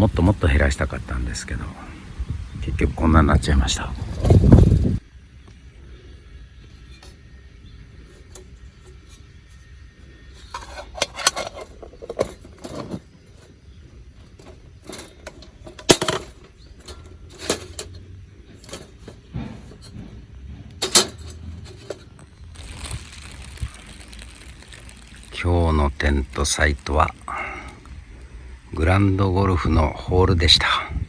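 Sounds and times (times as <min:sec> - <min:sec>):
metal cookware clinking: 0:10.4 - 0:13.0, 0:14.4 - 0:20.1, 0:20.7 - 0:22.3.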